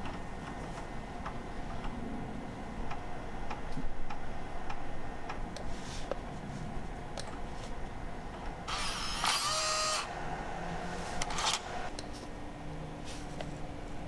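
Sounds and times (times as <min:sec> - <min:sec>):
steady low background noise: 0:00.0 - 0:14.0.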